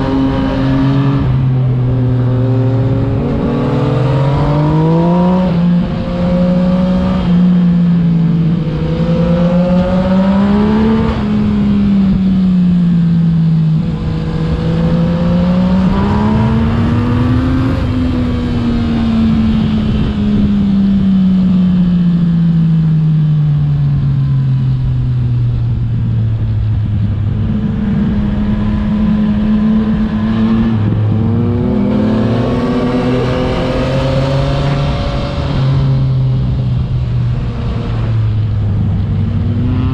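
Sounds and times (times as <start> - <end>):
motorcycle engine revving: 0.0 - 22.9, 25.6 - 39.9
wind rush: 24.8 - 39.9.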